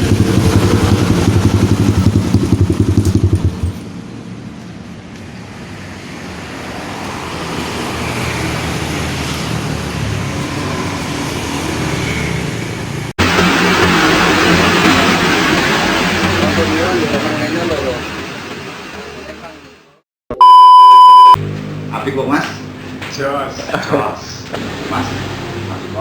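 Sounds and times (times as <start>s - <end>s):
dirt bike engine pulsing: 0.0s - 3.7s
road vehicle noise: 0.0s - 20.0s, 20.8s - 26.0s
loud noise: 11.9s - 19.8s.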